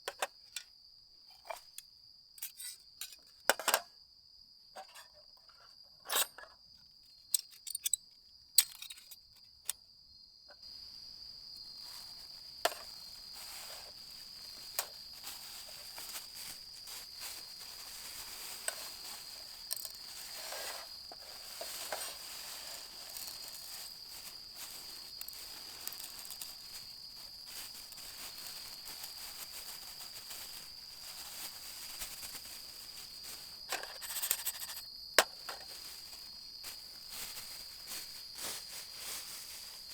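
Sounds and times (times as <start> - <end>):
insects trilling: 4.8 - 39.9
soft hiss with crackles: 10.8 - 34.8, 35.5 - 39.9.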